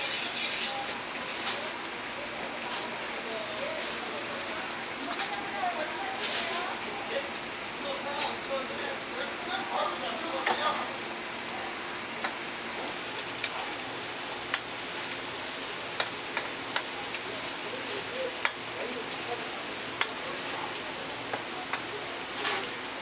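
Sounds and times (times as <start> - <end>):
meat patties sizzling on griddle: 0.0 - 23.0
metal spatula clicking on griddle: 14.5 - 14.7, 18.4 - 18.6, 20.0 - 20.2.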